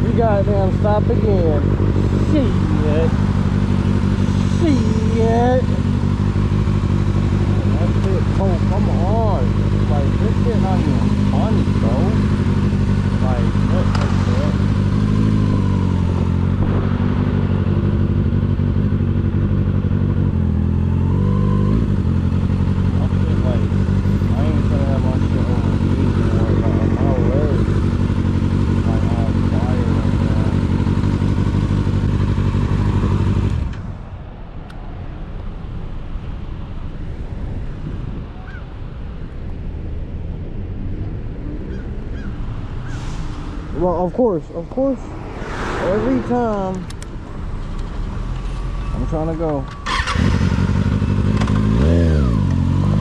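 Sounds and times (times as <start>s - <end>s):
motorcycle engine idling: 0.0s - 33.6s, 46.4s - 53.0s
traffic rumble: 0.0s - 53.0s.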